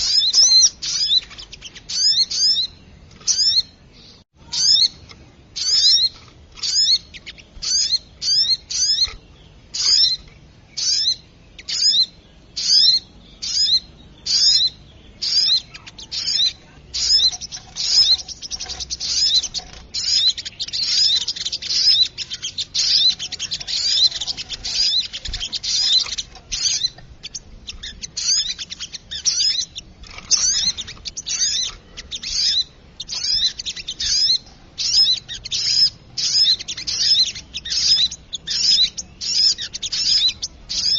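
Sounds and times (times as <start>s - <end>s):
bird calls sharp high chips: 9.8s - 40.9s.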